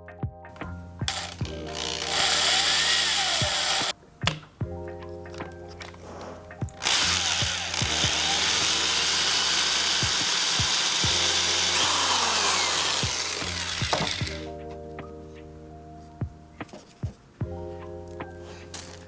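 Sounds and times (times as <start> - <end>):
power drill boring through wood: 1.0 - 4.4, 5.4 - 14.6, 18.6 - 19.0.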